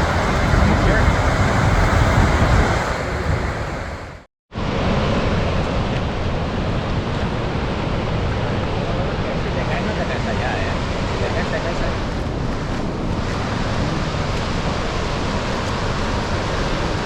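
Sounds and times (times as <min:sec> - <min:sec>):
waterfall rushing: 0:00.0 - 0:04.3
wind buffeting microphone: 0:00.0 - 0:17.0.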